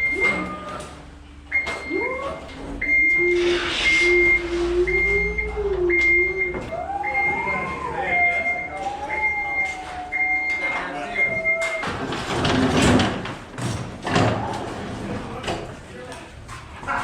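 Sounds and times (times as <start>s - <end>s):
alarm beeping: 0.0s - 0.9s, 1.5s - 12.1s
low wavering tone: 2.8s - 11.6s.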